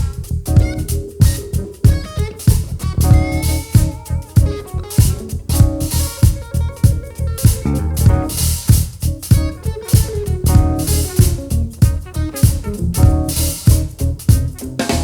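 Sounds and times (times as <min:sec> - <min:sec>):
funk band playing: 0:00.0 - 0:15.0.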